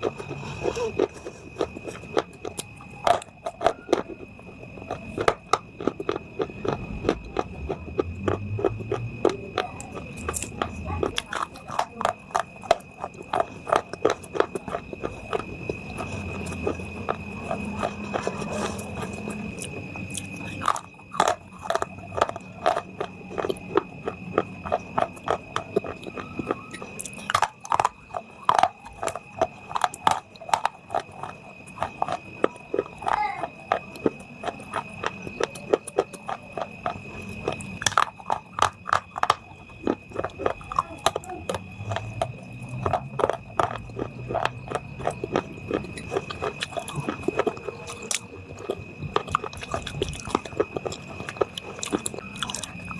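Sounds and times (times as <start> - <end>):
crunching and chewing: 0.0 - 52.9
faint high whine: 11.9 - 52.9.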